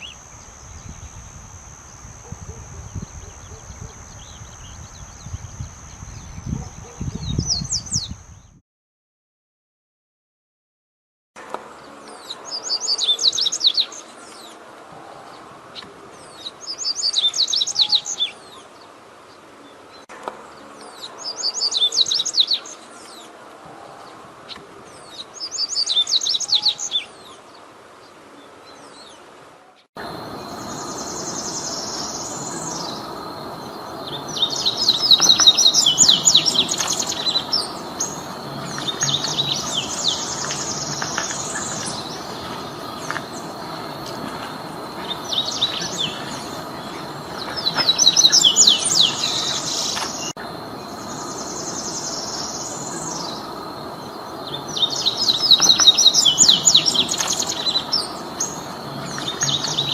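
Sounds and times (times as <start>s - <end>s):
birds chirping rapidly: 30.0s - 59.9s.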